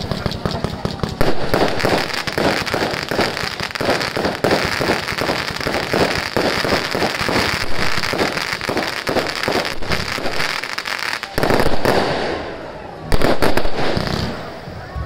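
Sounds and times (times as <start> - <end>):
fireworks popping and crackling: 0.0 - 12.5, 13.1 - 14.8.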